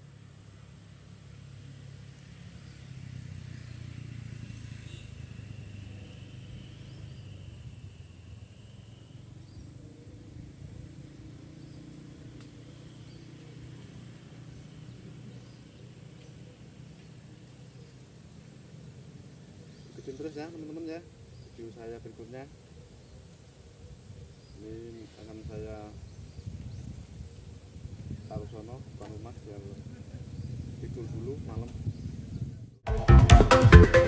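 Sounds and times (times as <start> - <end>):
vehicle engine passing: 0.0 - 21.2, 28.7 - 32.8.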